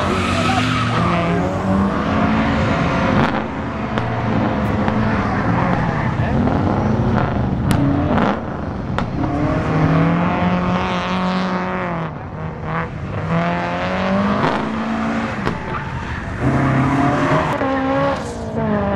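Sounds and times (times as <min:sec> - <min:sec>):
tyre squeal: 0:00.0 - 0:01.9
car engine revving hard: 0:00.0 - 0:18.9.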